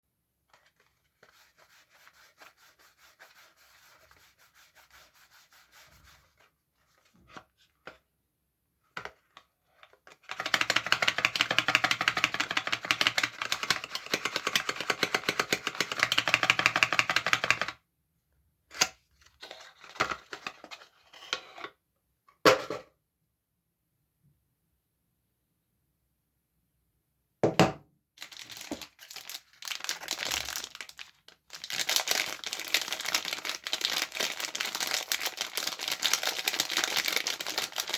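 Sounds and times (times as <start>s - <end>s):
rubbing and scratching of wrapping: 0.5s - 7.0s, 28.2s - 37.9s.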